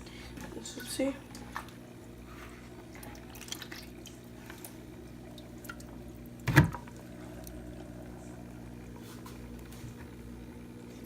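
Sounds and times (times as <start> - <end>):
steady low hum: 0.0 - 11.0
water dripping and splashing: 2.9 - 7.6.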